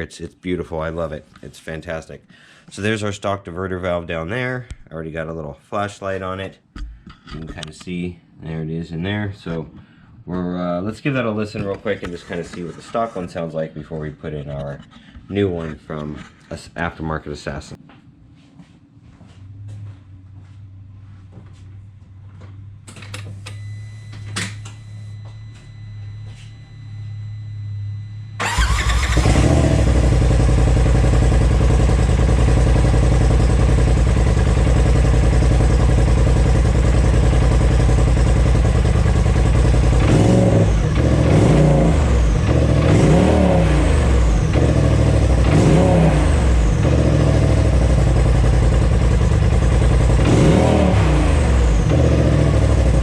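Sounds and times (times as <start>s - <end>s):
engine throttle blips: 22.8s - 53.0s
engine cranking and starting: 28.4s - 31.2s
engine idling: 28.4s - 53.0s.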